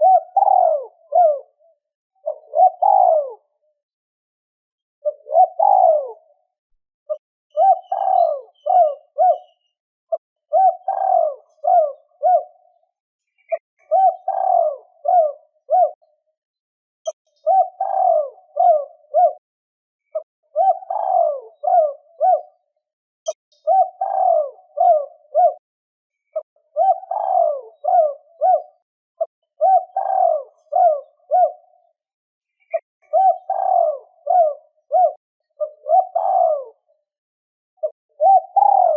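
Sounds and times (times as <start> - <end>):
dove cooing: 0.0 - 3.6, 5.0 - 6.5, 7.1 - 12.8, 13.5 - 16.1, 17.4 - 19.4, 20.1 - 22.7, 23.6 - 25.6, 26.4 - 31.9, 32.6 - 37.0, 37.8 - 38.9.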